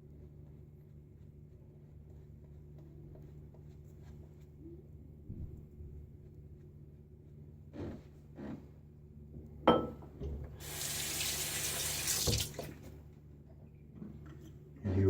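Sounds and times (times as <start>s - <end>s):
sink tap running: 10.6s - 12.8s.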